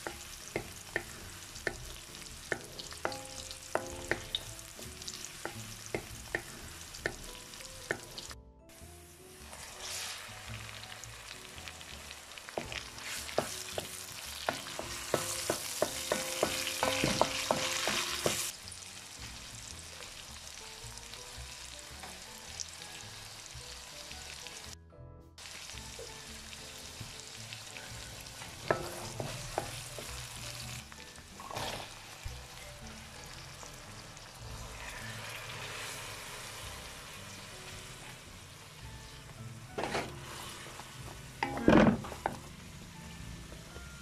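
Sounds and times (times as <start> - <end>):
spatula clicking and scraping pan: 0.0 - 4.4, 12.6 - 18.5, 28.6 - 30.1
food sizzling in hot oil: 0.0 - 24.8, 25.4 - 43.8.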